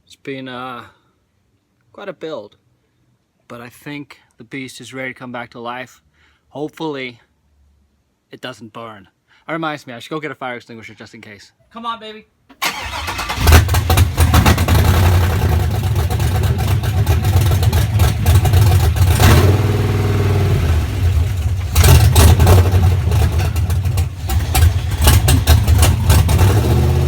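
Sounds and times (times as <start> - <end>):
truck engine starting and running: 12.6 - 27.0.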